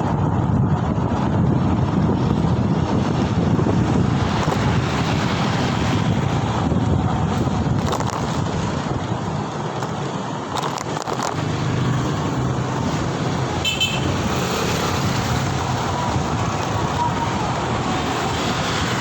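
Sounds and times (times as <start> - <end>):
motorbike riding: 0.0 - 19.0
road traffic: 0.0 - 19.0.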